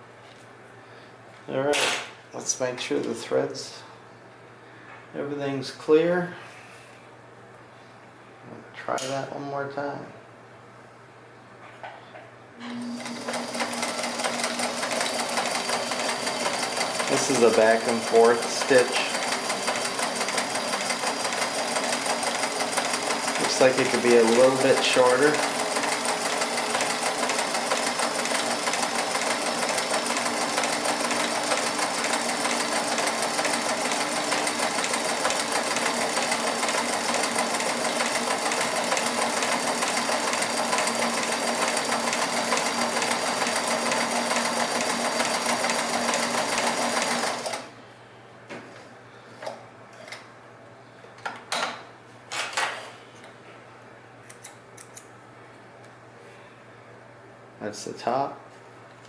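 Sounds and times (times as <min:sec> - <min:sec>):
sewing machine running: 0:12.7 - 0:47.7.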